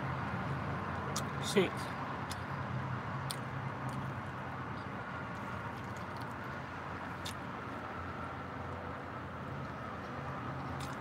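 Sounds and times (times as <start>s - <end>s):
person chewing: 3.2s - 4.4s, 7.1s - 7.5s, 10.8s - 11.0s.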